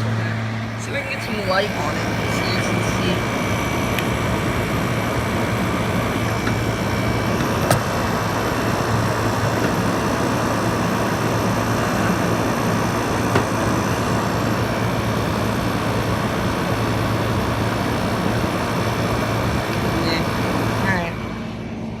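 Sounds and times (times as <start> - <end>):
air conditioner fan rushing: 0.0 - 22.0
faint high whine: 0.0 - 22.0
air conditioner click: 3.9 - 4.2, 6.2 - 12.4, 13.2 - 14.1.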